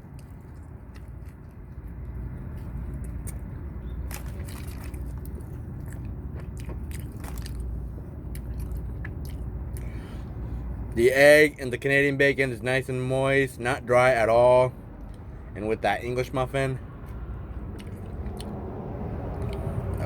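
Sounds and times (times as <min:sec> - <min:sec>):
person chewing food: 0:00.0 - 0:10.0, 0:17.0 - 0:18.6, 0:19.2 - 0:20.0.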